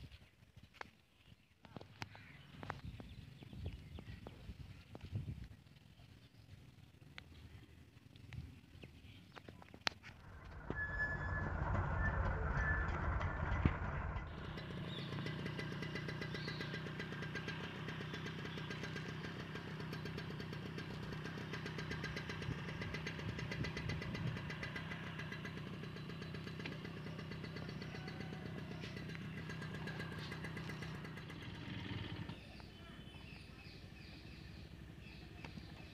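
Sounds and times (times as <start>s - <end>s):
small engine running: 10.1s - 32.7s.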